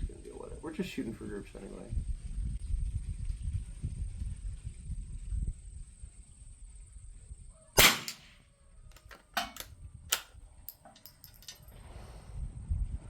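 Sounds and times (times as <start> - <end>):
rifle bolt clicks: 7.8 - 8.3, 8.9 - 11.6
rifle shot: 7.8 - 8.4, 9.4 - 10.3.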